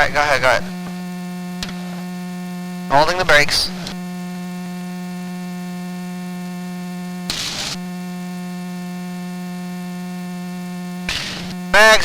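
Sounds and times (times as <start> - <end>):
headset intercom electrical hum: 0.0 - 12.0
noise burst: 7.2 - 9.1, 10.9 - 12.0.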